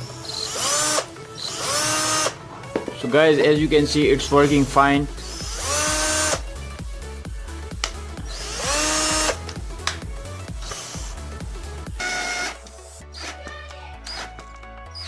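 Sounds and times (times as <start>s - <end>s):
cordless drill whining: 0.0s - 2.8s, 4.4s - 6.5s, 8.1s - 15.0s
background music with beat: 0.0s - 15.0s.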